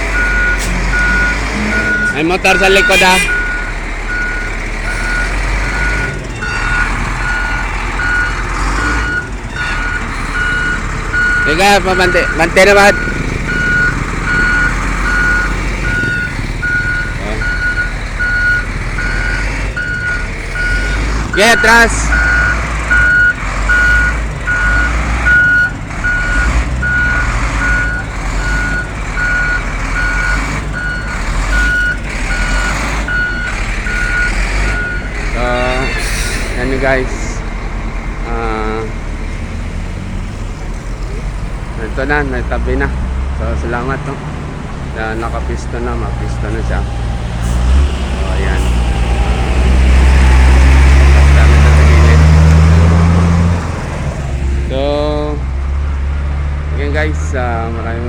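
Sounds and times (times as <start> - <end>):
diesel engine running: 0.0 - 58.0
reversing alarm beeping: 0.1 - 37.4.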